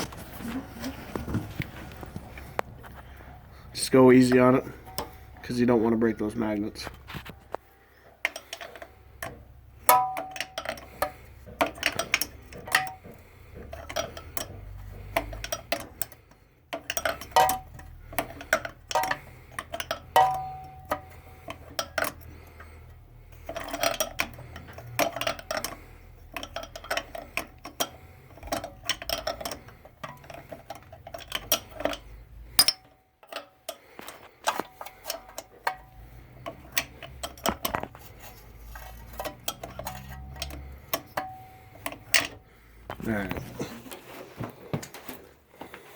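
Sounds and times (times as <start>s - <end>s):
metallic clinks of tool: 8.2s - 22.3s.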